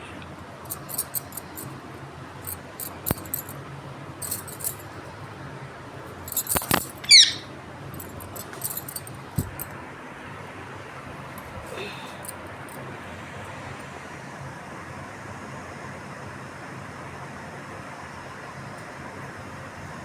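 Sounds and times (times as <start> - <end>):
light clicks and scratches: 0.7 - 1.7, 2.4 - 3.6, 4.2 - 4.8, 6.2 - 7.1, 8.0 - 9.7
parrot chirping: 6.6 - 7.5.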